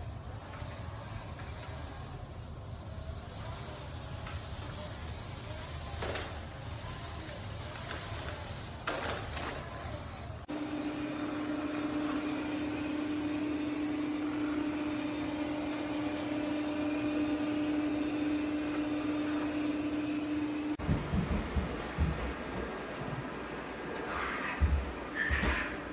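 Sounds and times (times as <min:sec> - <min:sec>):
hiss: 0:00.9 - 0:08.8
motor hum: 0:10.5 - 0:25.9.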